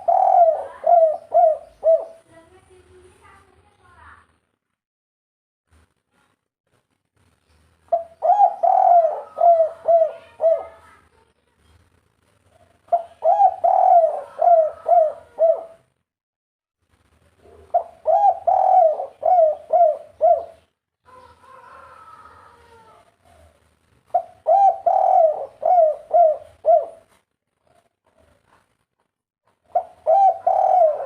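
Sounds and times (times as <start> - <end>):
dove cooing: 0.0 - 2.2, 7.9 - 10.9, 12.6 - 15.8, 17.5 - 28.5, 29.7 - 31.0
soft dove call: 0.0 - 2.2, 7.9 - 10.9, 12.6 - 15.8, 17.6 - 23.6, 24.2 - 27.1, 29.7 - 31.0.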